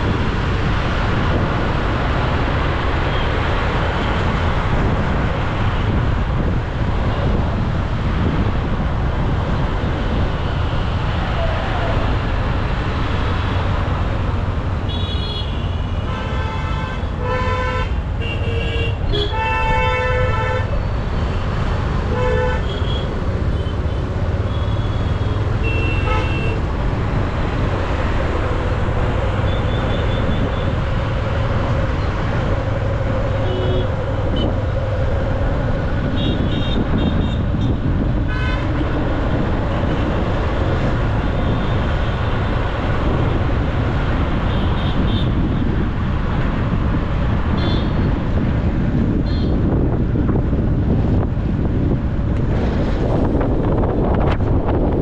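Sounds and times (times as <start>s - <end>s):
low rumble of traffic: 0.0s - 55.0s
vehicle horns honking: 14.9s - 20.8s, 22.1s - 26.7s, 33.4s - 34.5s, 36.2s - 37.7s, 38.3s - 38.8s, 47.5s - 48.0s, 49.2s - 49.6s.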